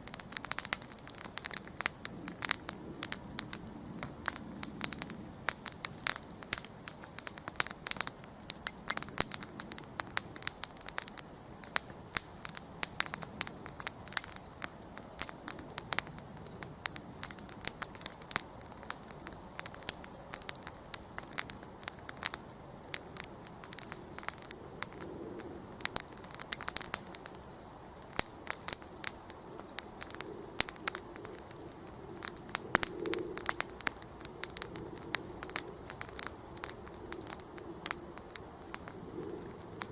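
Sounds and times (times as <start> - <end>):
campfire crackling and popping: 0.0 - 39.9
fire hiss: 0.0 - 39.9.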